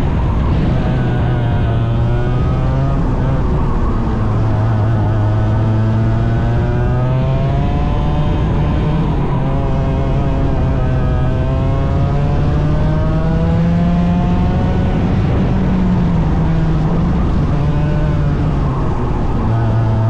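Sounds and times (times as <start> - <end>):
racing engine running hard: 0.0 - 20.0.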